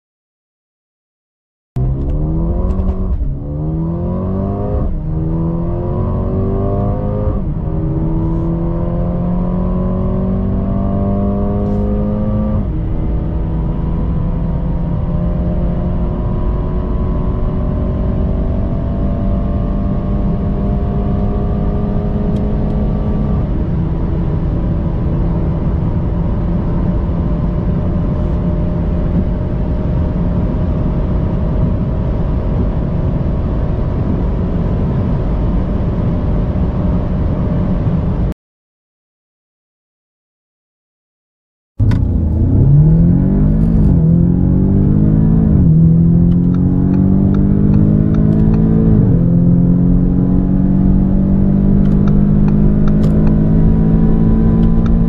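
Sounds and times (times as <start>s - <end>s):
gear upshifts: 1.8s - 3.6s, 41.8s - 55.0s
car engine accelerating hard: 1.8s - 38.3s, 41.8s - 55.0s.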